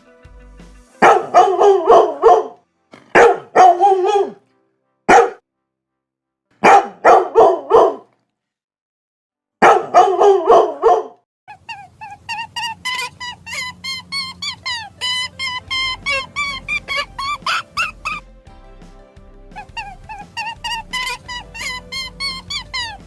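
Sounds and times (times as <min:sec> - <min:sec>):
dog barking: 0:01.0 - 0:04.4, 0:05.1 - 0:05.4, 0:06.6 - 0:08.1, 0:09.6 - 0:11.2.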